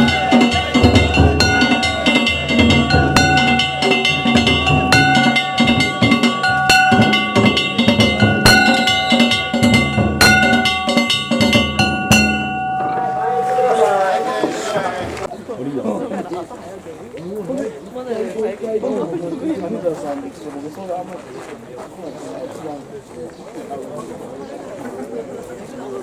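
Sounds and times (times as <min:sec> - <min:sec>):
metal gongs ringing: 0:00.0 - 0:15.2
sharp accent strike: 0:00.0 - 0:15.2
taiko drum beating: 0:00.0 - 0:15.2.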